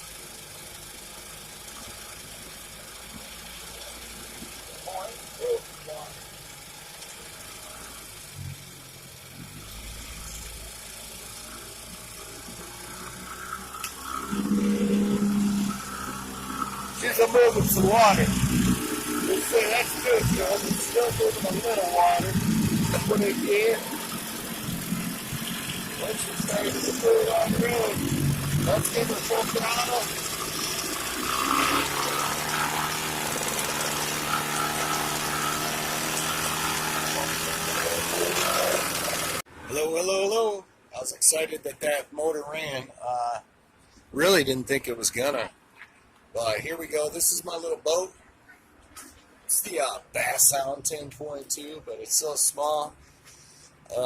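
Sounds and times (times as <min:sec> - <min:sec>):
outboard motor running: 0:00.0 - 0:39.5.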